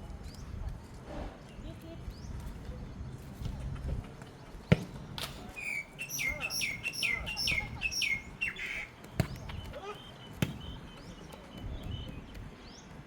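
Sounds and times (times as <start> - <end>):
bird calling high downward notes: 5.6 - 8.9.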